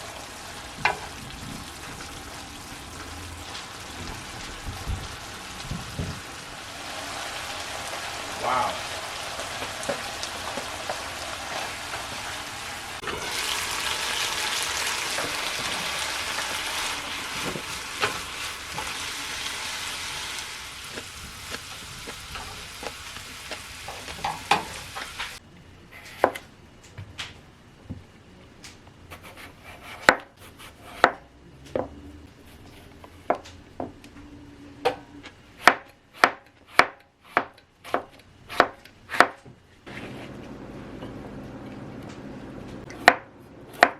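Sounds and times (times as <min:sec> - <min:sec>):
food sizzling in a frying pan: 0:00.0 - 0:25.4
knife chopping on cutting board: 0:29.1 - 0:31.2, 0:35.6 - 0:39.4, 0:42.9 - 0:43.9.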